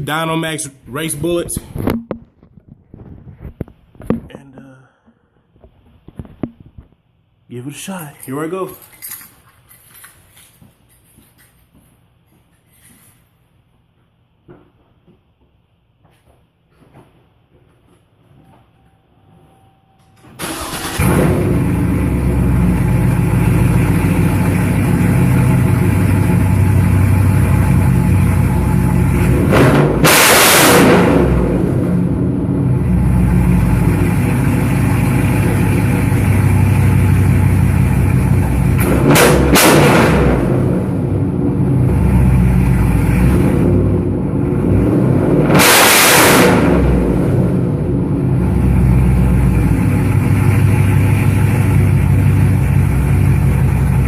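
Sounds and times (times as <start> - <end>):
engine throttle blips: 20.4 - 54.0
vee eight engine idling: 31.8 - 38.8.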